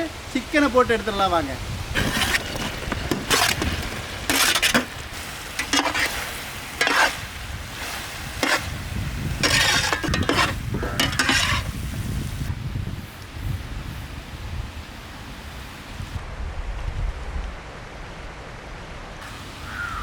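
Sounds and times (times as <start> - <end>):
sauce sizzling: 1.8 - 12.5
ladle scraping a pan: 1.9 - 12.0.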